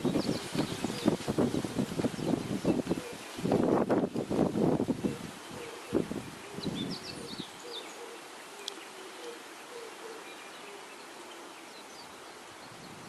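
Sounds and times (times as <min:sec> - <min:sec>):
small birds chirping: 0:00.0 - 0:04.2, 0:04.9 - 0:13.0
wind buffeting microphone: 0:00.0 - 0:07.5, 0:12.6 - 0:13.0
background hiss: 0:00.0 - 0:13.0.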